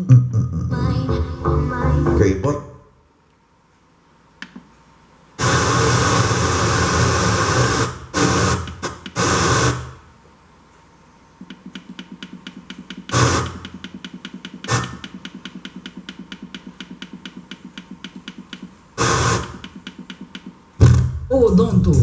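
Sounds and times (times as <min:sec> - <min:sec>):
bursts of hissing noise: 0:05.4 - 0:10.0, 0:13.0 - 0:13.8, 0:19.0 - 0:20.0
fast even ticking clicks: 0:11.4 - 0:20.6.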